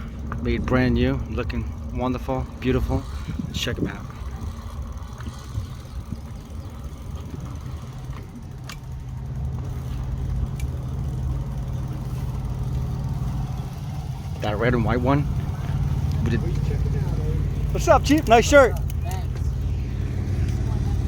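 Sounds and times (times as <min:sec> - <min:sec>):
diesel truck engine idling: 0:05.8 - 0:21.0.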